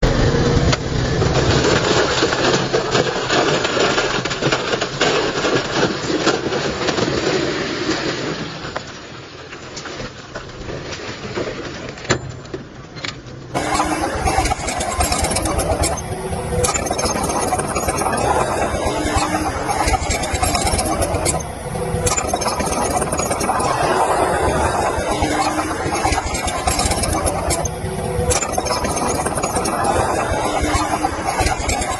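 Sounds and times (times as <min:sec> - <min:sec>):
heavy diesel machinery engines: 0:12.3 - 0:31.9.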